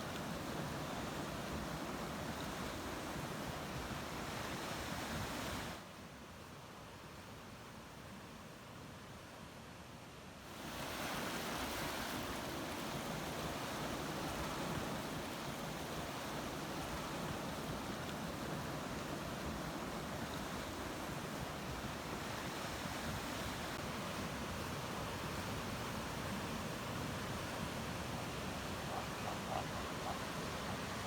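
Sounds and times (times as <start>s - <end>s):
ocean waves washing: 10.5s - 31.0s.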